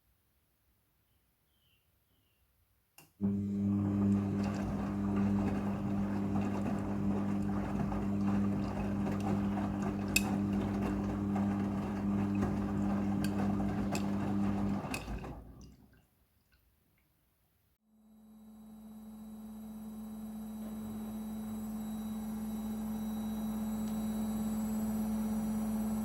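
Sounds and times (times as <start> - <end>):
washing machine hum: 3.2 - 16.0, 19.0 - 26.0.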